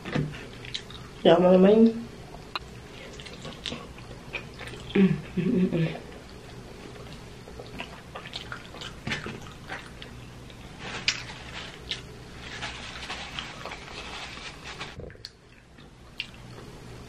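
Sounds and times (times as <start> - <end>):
chewing with mouth clicks: 0.4 - 1.2, 2.3 - 5.0, 6.1 - 12.1, 15.0 - 16.7
paper napkin crinkling: 10.6 - 15.0.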